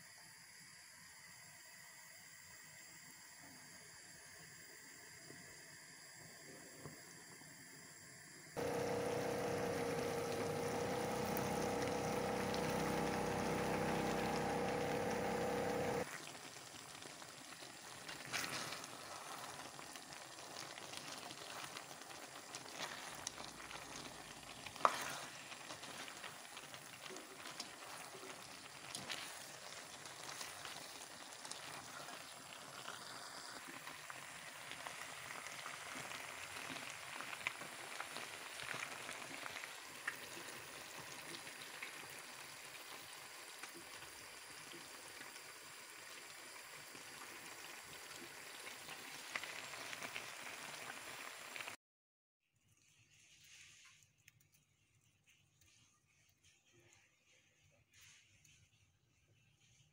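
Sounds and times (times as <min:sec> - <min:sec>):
food sizzling in a pan: 0:07.6 - 0:51.8
loud droning hum: 0:08.6 - 0:16.0.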